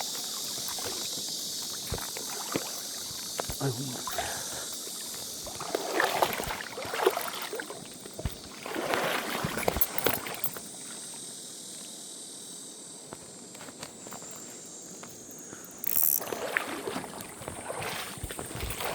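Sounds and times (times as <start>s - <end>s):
water splashing around wading legs: 0.0s - 11.0s, 15.8s - 18.9s.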